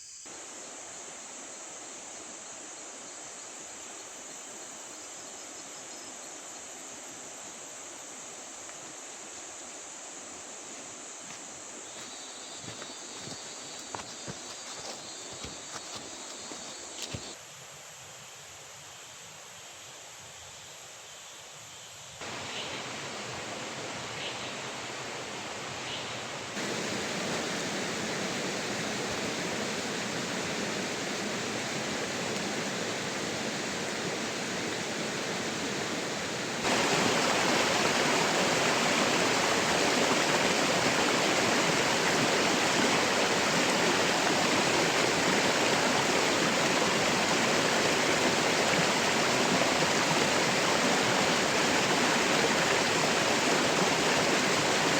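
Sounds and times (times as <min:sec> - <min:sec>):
water rushing: 0:22.2 - 0:54.9.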